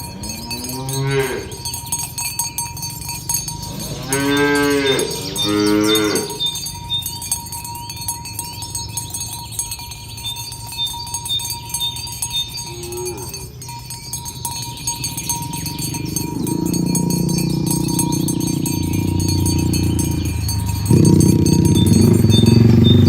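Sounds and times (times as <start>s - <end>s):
cow mooing: 0.0s - 1.7s, 3.6s - 6.7s, 12.6s - 13.6s, 15.1s - 23.0s
cowbells clinking: 0.0s - 23.0s.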